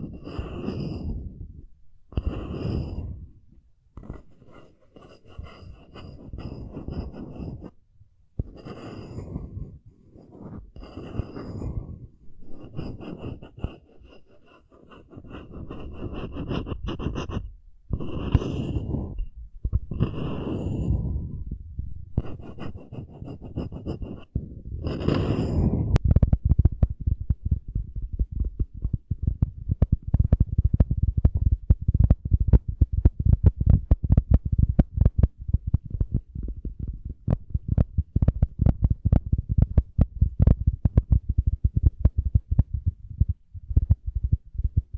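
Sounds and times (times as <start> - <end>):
scratching on wooden coaster: 0.0 - 1.2, 4.0 - 7.8, 8.4 - 21.0, 22.2 - 26.8.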